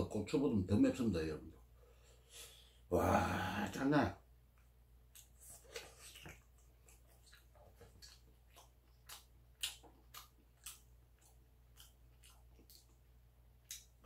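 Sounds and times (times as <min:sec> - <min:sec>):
person chewing: 0:04.6 - 0:14.0.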